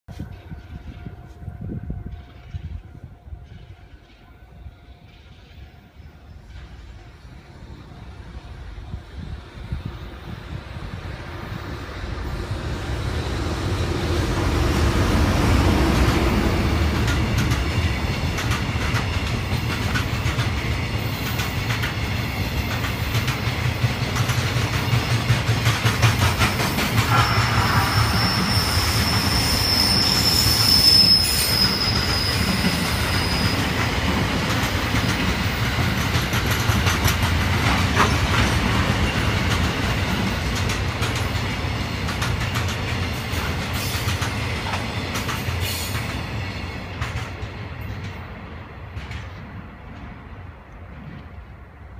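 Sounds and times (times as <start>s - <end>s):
freight train rumbling past: 0.1s - 51.9s
wheels clicking over rail joints: 15.7s - 27.3s, 32.4s - 51.4s
high wheel squeal: 27.0s - 33.9s.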